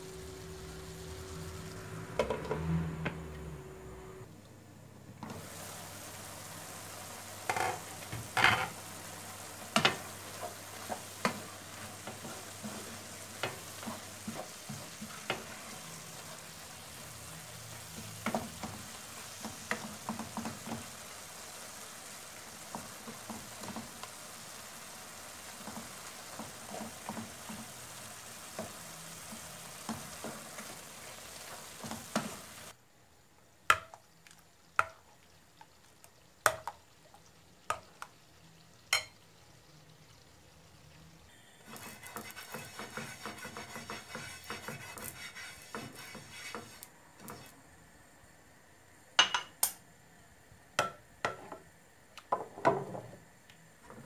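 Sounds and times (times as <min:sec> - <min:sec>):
food sizzling in frying pan: 0:00.0 - 0:03.6, 0:05.2 - 0:32.8, 0:33.7 - 0:48.2
wooden spoon scraping pan: 0:41.7 - 0:47.5.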